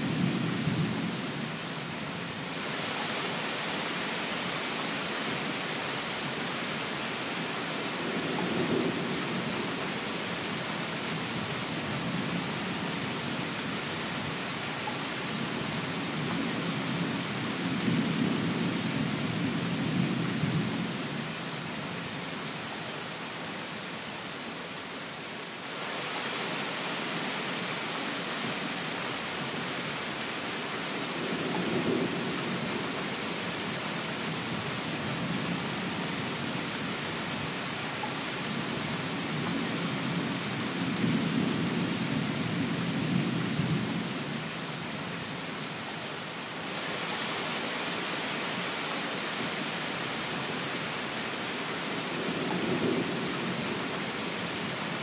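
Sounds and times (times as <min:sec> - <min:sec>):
heavy rain hissing: 0:00.0 - 0:55.0.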